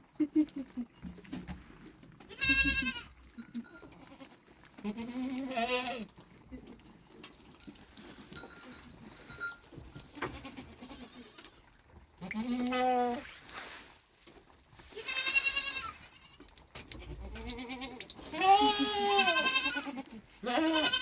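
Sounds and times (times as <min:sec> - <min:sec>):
goats bleating: 0:02.3 - 0:06.1, 0:10.2 - 0:11.6, 0:12.2 - 0:13.2, 0:15.0 - 0:21.0.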